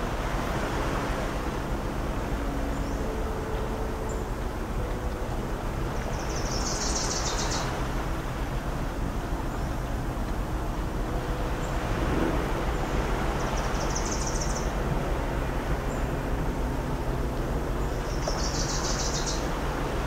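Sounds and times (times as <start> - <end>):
distant engine hum: 0.0 - 20.0
surf rumbling: 0.0 - 20.0
songbird trilling: 6.0 - 7.8, 13.4 - 14.7, 17.8 - 19.5.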